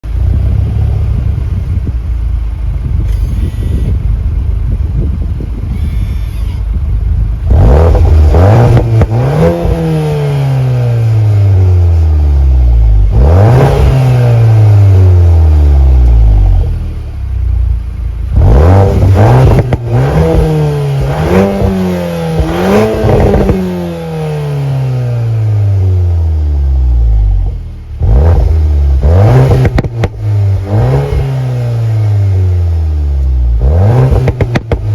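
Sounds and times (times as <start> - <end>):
car engine revving: 7.2 - 34.9.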